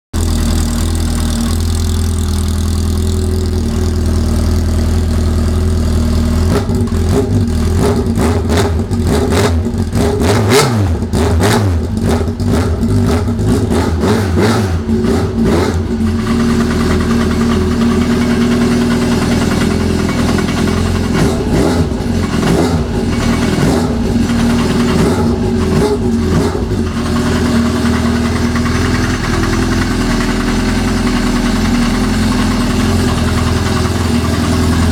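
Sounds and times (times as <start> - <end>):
snowmobile engine revving: 6.6 - 16.8.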